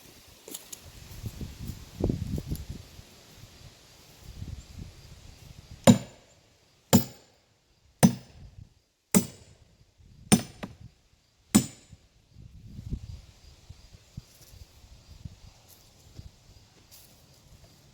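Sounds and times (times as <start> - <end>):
sledgehammer striking steel wedge: 5.9 - 6.3, 6.9 - 7.3, 8.0 - 8.3, 9.2 - 9.5, 10.3 - 10.8, 11.6 - 12.0.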